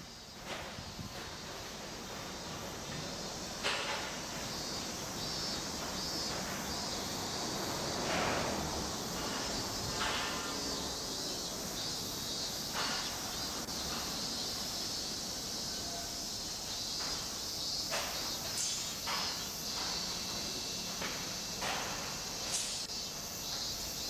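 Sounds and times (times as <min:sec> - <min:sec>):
steady high-pitched hiss: 0:00.0 - 0:24.0
sharp knocks from construction work: 0:00.4 - 0:04.6, 0:08.0 - 0:10.9, 0:12.7 - 0:14.2, 0:17.0 - 0:22.9.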